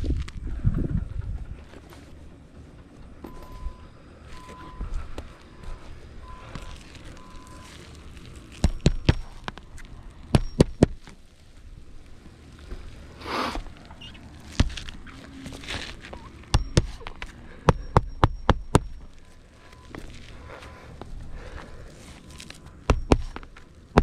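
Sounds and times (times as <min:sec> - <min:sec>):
scrape or rustle: 0:06.4 - 0:08.6, 0:12.4 - 0:16.4, 0:21.9 - 0:22.8
hammer striking nails: 0:10.3 - 0:11.0, 0:16.5 - 0:19.1, 0:22.9 - 0:24.0.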